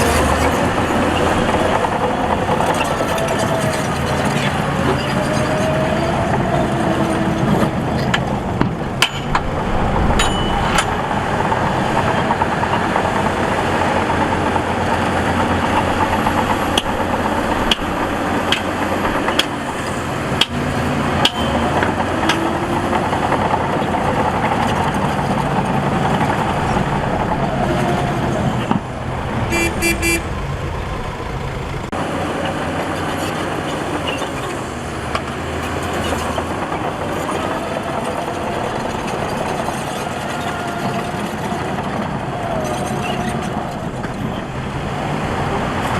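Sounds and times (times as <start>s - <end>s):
heavy diesel machinery running: 0.0s - 45.9s
sharp metallic clanks: 8.6s - 12.5s
horn-like tone: 29.5s - 30.4s.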